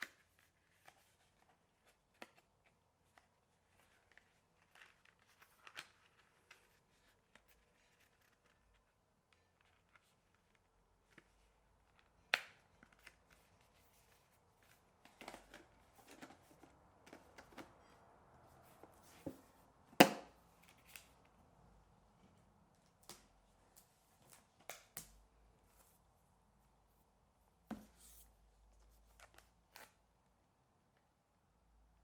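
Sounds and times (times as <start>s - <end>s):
hands handling packaging: 0.0s - 21.4s.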